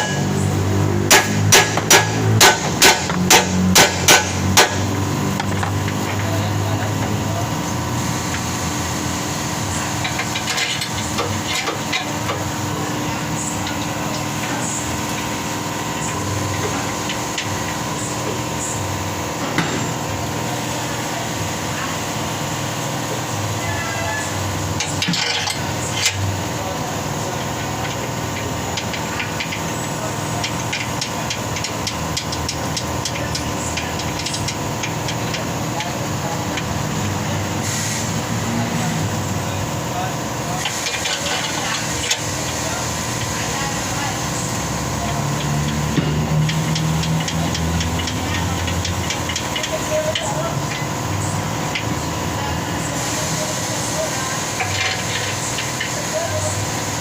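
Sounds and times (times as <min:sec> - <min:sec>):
steady mechanical hum: 0:00.0 - 0:57.0
hammer blows: 0:01.1 - 0:05.5.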